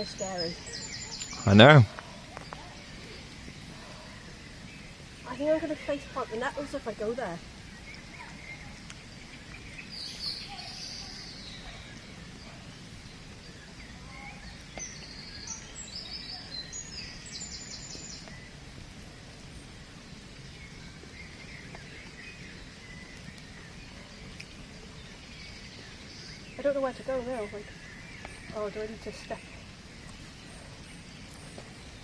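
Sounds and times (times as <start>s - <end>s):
birds calling: 0.0s - 32.0s.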